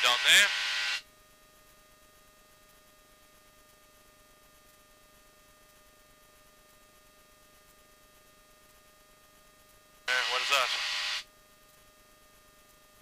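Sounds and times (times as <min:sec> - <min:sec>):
thin electrical hum: 0:00.0 - 0:13.0
faint steady hiss: 0:09.6 - 0:11.3.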